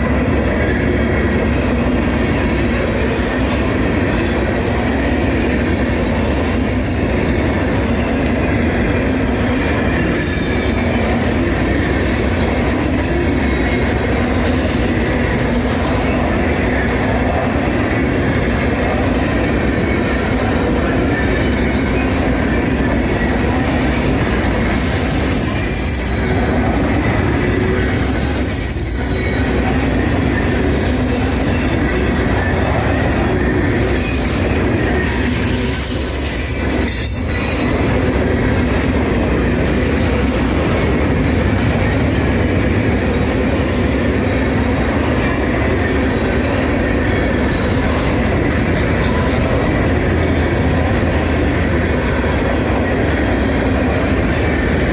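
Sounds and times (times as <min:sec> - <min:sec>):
train wheels rumbling on rail: 0:00.0 - 0:54.9
high-pitched wheel squeal: 0:02.5 - 0:04.3, 0:10.0 - 0:16.4, 0:22.8 - 0:38.8.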